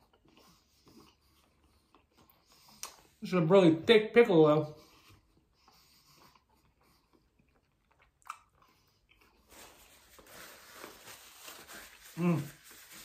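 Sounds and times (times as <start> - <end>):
man chewing: 0.0 - 3.2, 5.0 - 11.7.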